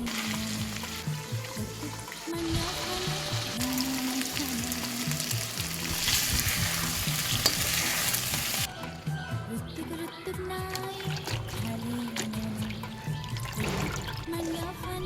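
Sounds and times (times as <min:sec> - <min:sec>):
food sizzling in a pan: 0:00.0 - 0:08.7
soft background music: 0:00.0 - 0:15.0.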